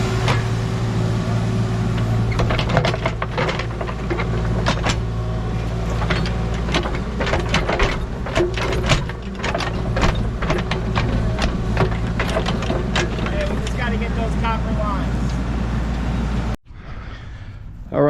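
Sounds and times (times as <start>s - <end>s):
earthmoving machine engine running: 0.0s - 16.6s
metal clanks and knocks: 0.1s - 0.8s, 1.8s - 14.3s.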